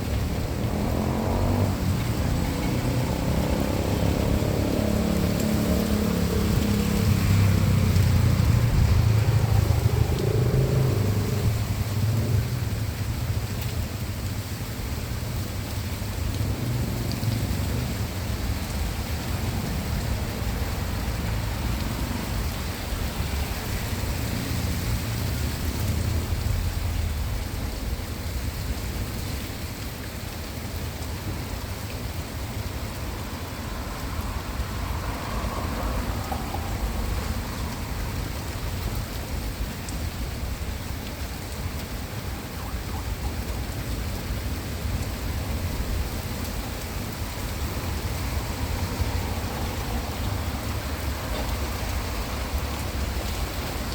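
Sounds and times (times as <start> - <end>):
low thunder rumble: 0.0 - 13.3
rain falling on surfaces: 0.0 - 53.9.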